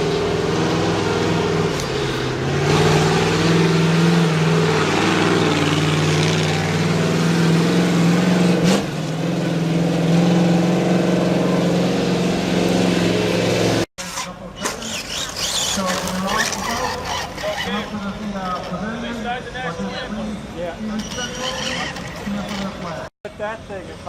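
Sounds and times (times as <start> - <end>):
large vehicle engine running: 0.0 - 13.9.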